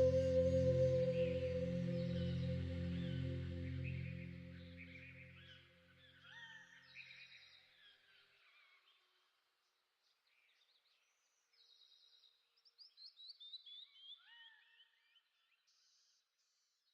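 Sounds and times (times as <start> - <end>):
falling whistled bird notes: 0.0 - 4.9.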